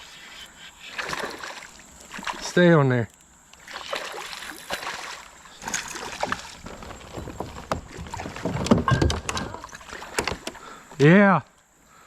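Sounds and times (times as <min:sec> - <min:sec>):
water splashing: 0:00.9 - 0:02.7, 0:03.6 - 0:10.8
knocks and clicks against kayak: 0:06.2 - 0:11.0.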